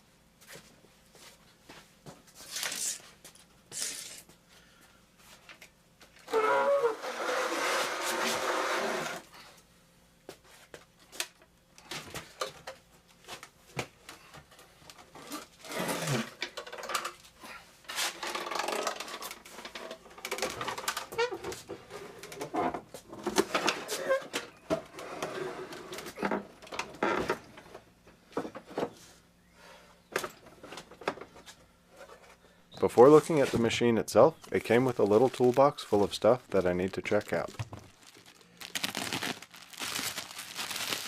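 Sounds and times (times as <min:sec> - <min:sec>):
loud rustling and scraping: 0:06.3 - 0:09.2.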